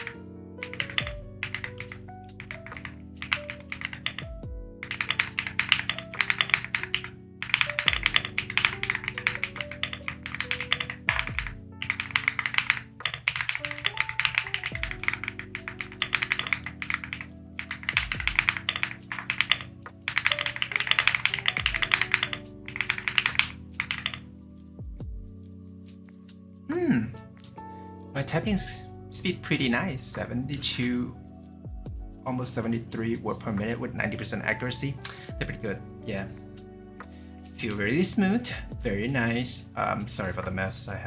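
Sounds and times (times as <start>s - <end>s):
mechanical keyboard typing: 0.0s - 24.2s
lofi background music: 0.0s - 41.0s.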